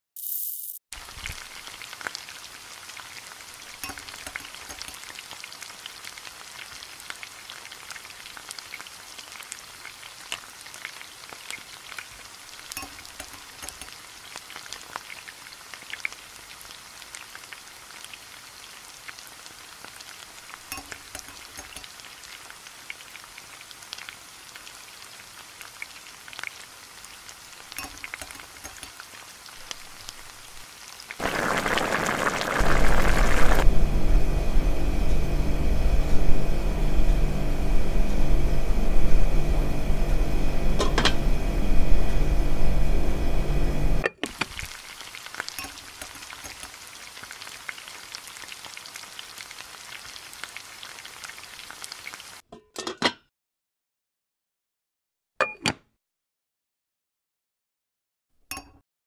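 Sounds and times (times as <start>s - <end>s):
oil sizzling with pops: 0.2s - 33.7s, 44.0s - 52.5s.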